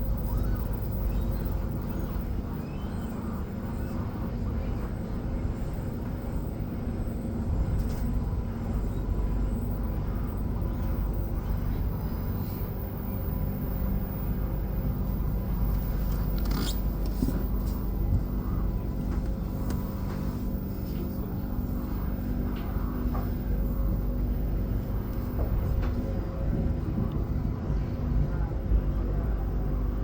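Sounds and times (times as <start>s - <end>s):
train motor hum: 0.0s - 30.0s.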